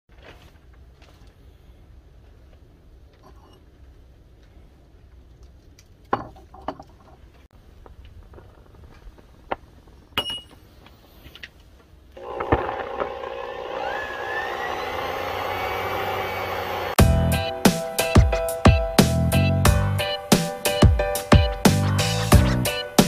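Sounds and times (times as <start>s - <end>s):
air blower whirring: 12.2s - 18.0s.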